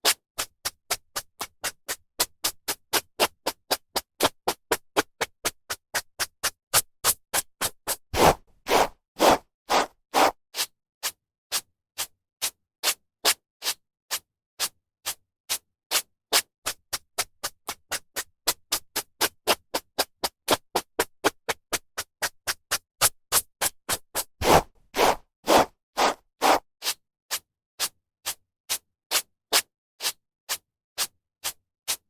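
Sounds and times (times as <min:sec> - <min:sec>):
hairbrush swishing through hair: 0:08.2 - 0:10.3, 0:24.4 - 0:26.6.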